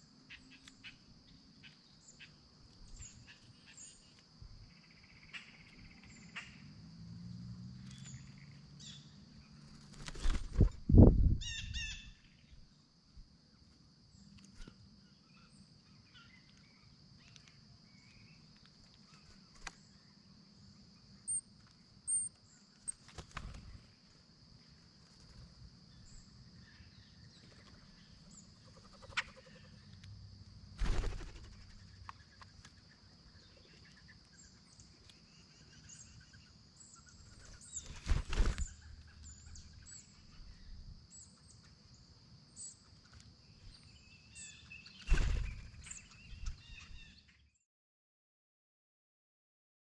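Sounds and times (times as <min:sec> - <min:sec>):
faint bird chirps: 0:00.0 - 0:06.7, 0:10.0 - 0:12.8, 0:14.1 - 0:23.9, 0:25.9 - 0:30.0, 0:43.4 - 0:47.6.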